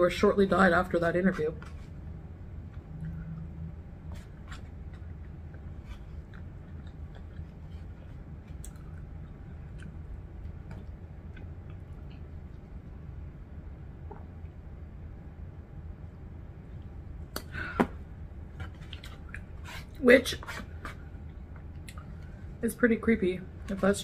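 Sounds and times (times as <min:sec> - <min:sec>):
faint steady hum: 0:00.0 - 0:24.0
person chewing food: 0:04.1 - 0:12.8, 0:18.6 - 0:20.0.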